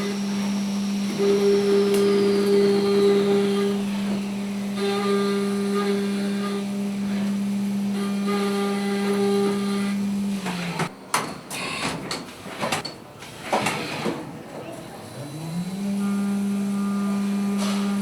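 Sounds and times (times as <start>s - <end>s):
milling machine spindle running: 0.0s - 10.9s, 15.0s - 18.0s.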